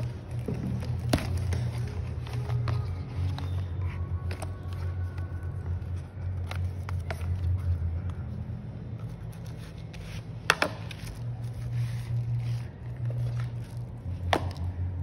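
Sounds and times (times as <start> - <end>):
low hum: 0.0 - 15.0
packaging rubbing and scraping: 9.0 - 14.1.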